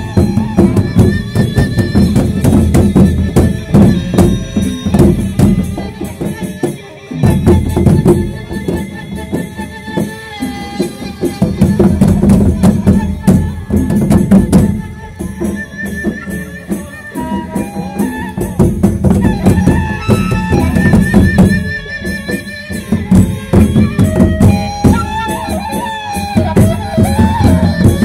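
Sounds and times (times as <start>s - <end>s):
jingling cymbals: 13.4s - 19.0s.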